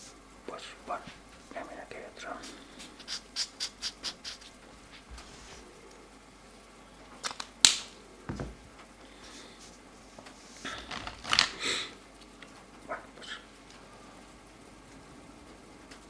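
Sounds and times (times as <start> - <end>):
rustling: 2.4 - 6.0
soft thump: 8.3 - 8.7.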